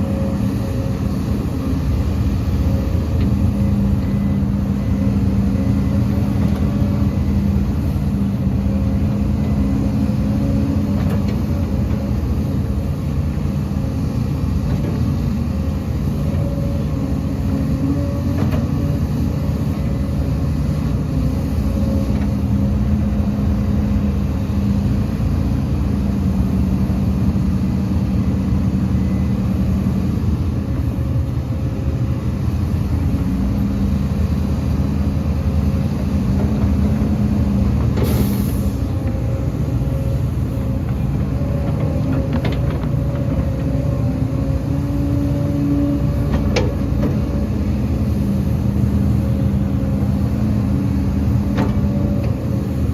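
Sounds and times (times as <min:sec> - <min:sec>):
diesel machinery running: 0:00.0 - 0:52.9
brief hiss: 0:38.0 - 0:38.8.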